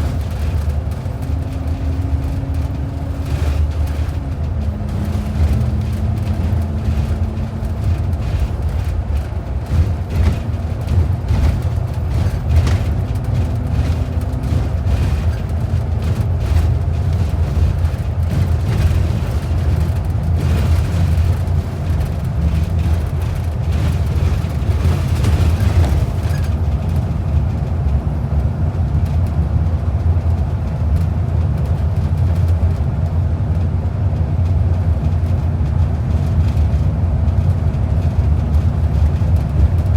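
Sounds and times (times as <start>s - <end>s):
bus engine and road rumble: 0.0s - 39.9s
light rattles and knocks: 0.0s - 39.9s.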